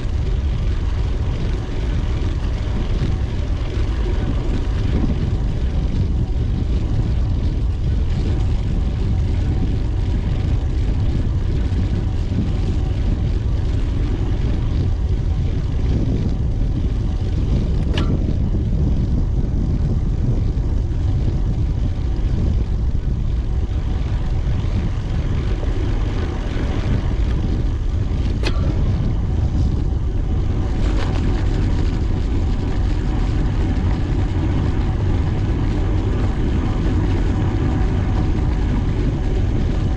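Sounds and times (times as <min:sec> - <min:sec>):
faint steady hum: 0:00.0 - 0:39.9
wind rumble on microphone: 0:00.0 - 0:39.9.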